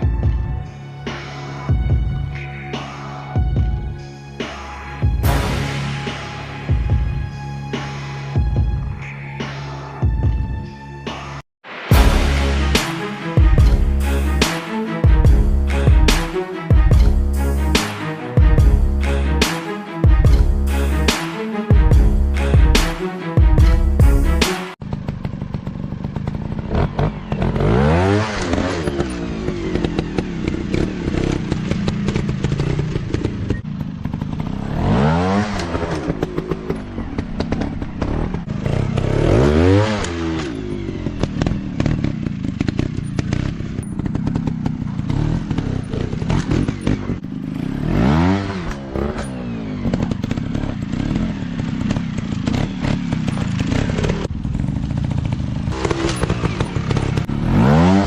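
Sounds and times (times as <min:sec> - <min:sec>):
dirt bike engines revving: 0:24.9 - 0:58.0.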